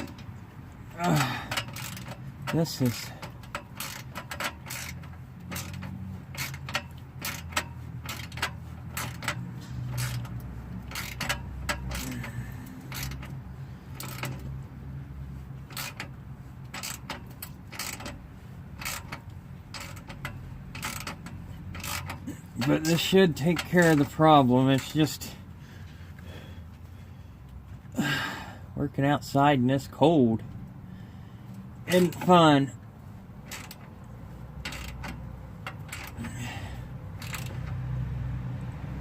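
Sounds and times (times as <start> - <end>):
metallic clicks of hand tools: 1.0 - 13.4, 14.0 - 14.5, 18.8 - 25.0, 34.6 - 36.6, 37.2 - 37.8.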